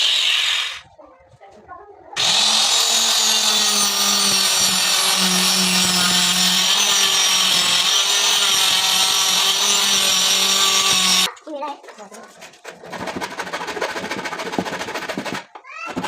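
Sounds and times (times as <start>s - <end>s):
electric saw cutting wood: 0.0s - 0.8s, 2.2s - 11.3s.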